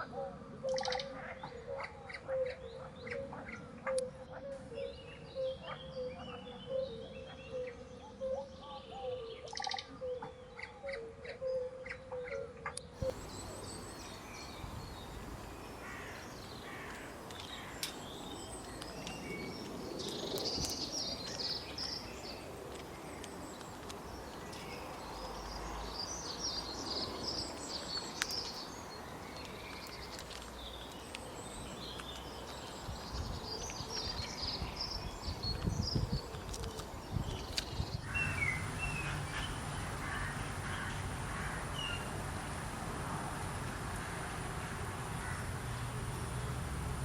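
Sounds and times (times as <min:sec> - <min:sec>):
steady background hiss: 0:13.0 - 0:47.0.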